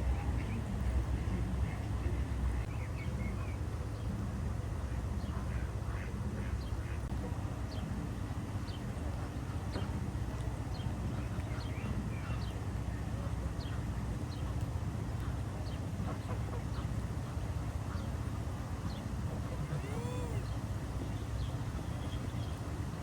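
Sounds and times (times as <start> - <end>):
small birds chirping: 18.9 - 22.8
ducks calling: 19.3 - 20.6.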